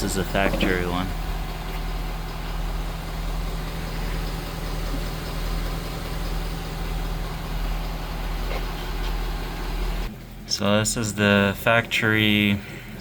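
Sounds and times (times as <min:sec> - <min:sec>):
vehicle engine idling: 0:00.0 - 0:10.4.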